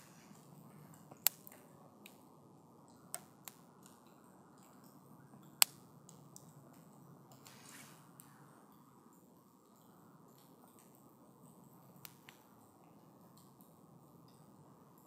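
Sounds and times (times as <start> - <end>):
campfire crackling: 0.0 - 8.4, 10.3 - 15.0.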